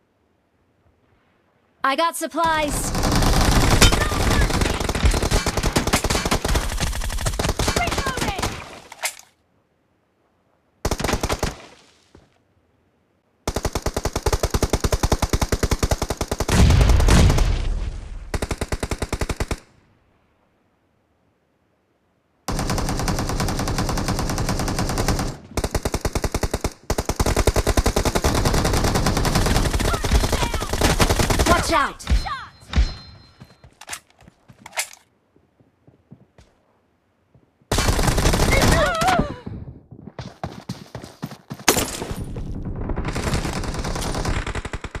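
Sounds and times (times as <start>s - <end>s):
video game automatic gunfire: 2.6s - 8.6s, 22.5s - 31.7s, 37.7s - 39.0s, 41.7s - 45.0s.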